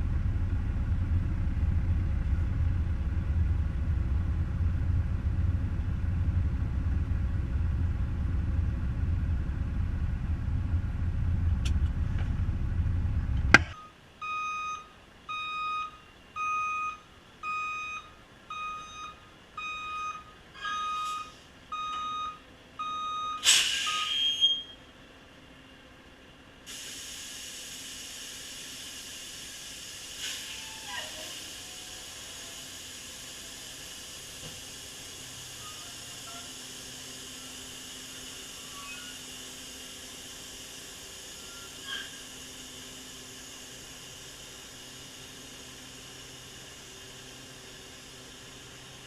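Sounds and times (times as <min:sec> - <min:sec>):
truck diesel engine running: 0:00.0 - 0:13.8, 0:31.0 - 0:49.0
air hiss: 0:23.4 - 0:24.2, 0:26.7 - 0:49.0.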